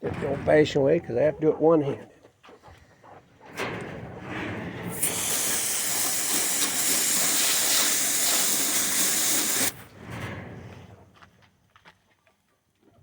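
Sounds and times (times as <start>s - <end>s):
garden hose spraying water: 4.9s - 9.8s.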